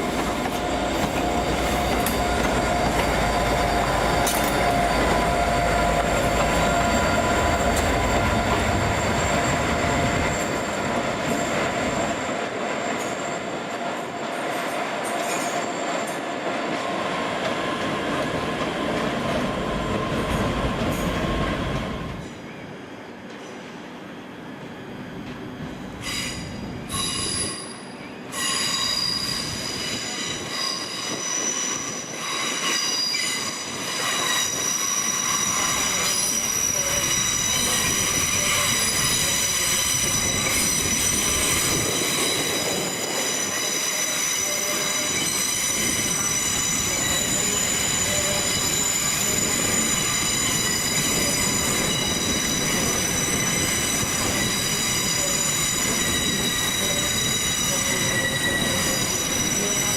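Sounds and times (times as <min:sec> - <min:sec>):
train low rumble: 0:00.0 - 0:12.5
train wheels squealing on track: 0:00.0 - 0:59.9.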